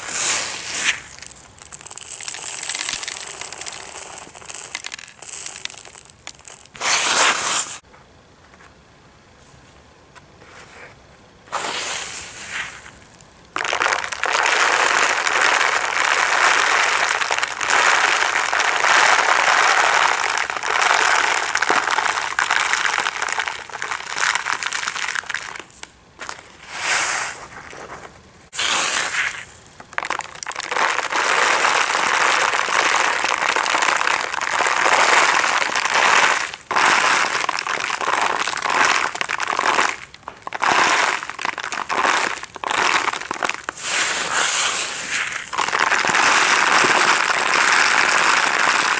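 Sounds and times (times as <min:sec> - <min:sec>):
gravel crunching and rattling: 0:00.8 - 0:07.3, 0:12.4 - 0:44.5.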